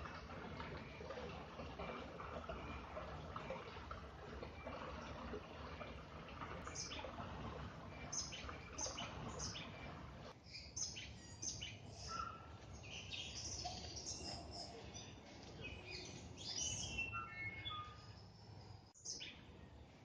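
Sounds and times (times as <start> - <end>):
running water: 0.0 - 10.4
birds chirping and whistling: 8.0 - 18.4.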